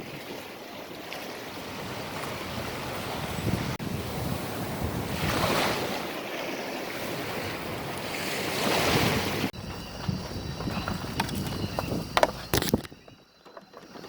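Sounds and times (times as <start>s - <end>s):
surf washing on beach: 0.0s - 9.6s
wind buffeting microphone: 1.5s - 14.0s.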